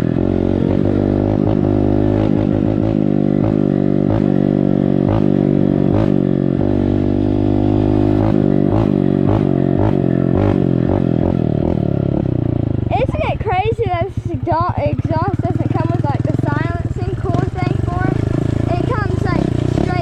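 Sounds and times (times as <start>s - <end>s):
dirt bike engine idling: 0.0s - 20.0s.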